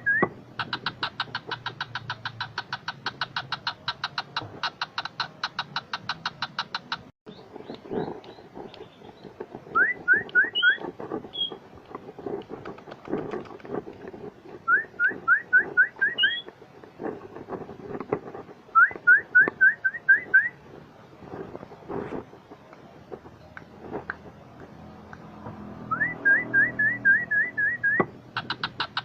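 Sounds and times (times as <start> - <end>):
bird singing whistled notes: 0.0 - 0.3, 9.7 - 11.6, 14.6 - 16.5, 18.7 - 20.6, 25.8 - 28.6.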